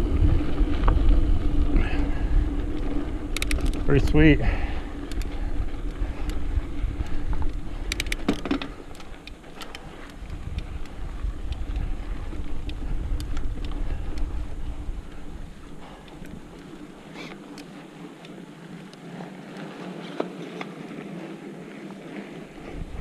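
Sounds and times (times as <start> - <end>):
wind buffeting microphone: 0.0 - 18.9, 22.0 - 23.0
bike tyres rolling over dirt: 0.0 - 23.0
sharp rattling clicks: 2.7 - 4.3, 5.0 - 14.3.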